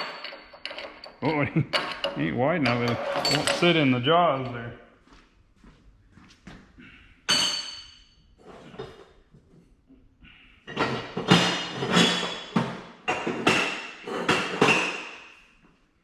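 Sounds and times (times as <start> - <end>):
steel pipes clanking: 0.0 - 4.7.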